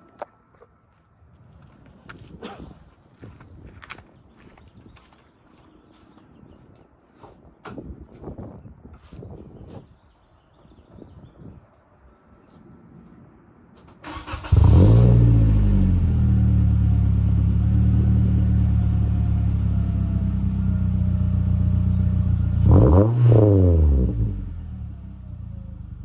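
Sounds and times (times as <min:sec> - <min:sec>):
car engine starting and idling: 0:13.9 - 0:26.0
car engine revving: 0:14.1 - 0:21.8, 0:22.4 - 0:24.7.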